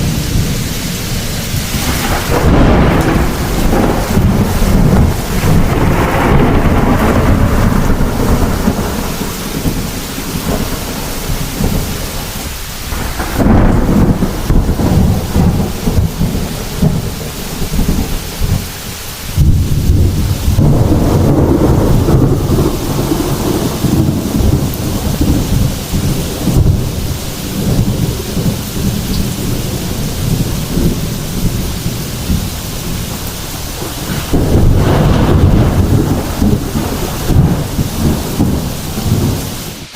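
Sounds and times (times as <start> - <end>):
heavy rain falling: 0.0 - 39.9
thunder rumbling: 0.0 - 39.9.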